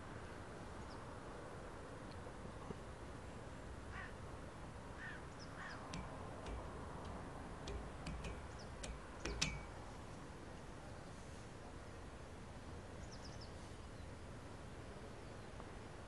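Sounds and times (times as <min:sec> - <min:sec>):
steady background hiss: 0:00.0 - 0:16.0
birds calling: 0:05.0 - 0:09.9.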